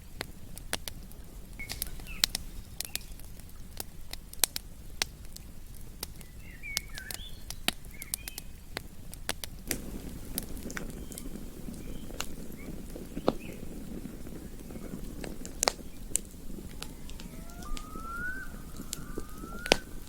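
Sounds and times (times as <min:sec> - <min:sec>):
campfire crackling: 0:00.0 - 0:20.0
bird chirps: 0:15.9 - 0:20.0.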